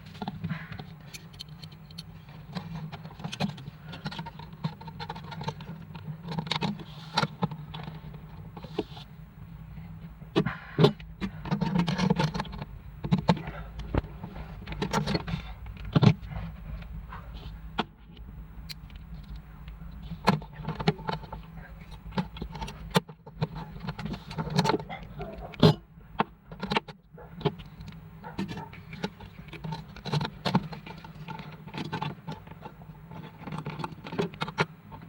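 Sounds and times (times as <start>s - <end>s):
steady low hum: 0.0s - 35.0s
small metal parts clicking and rattling: 0.2s - 8.8s, 26.5s - 35.0s.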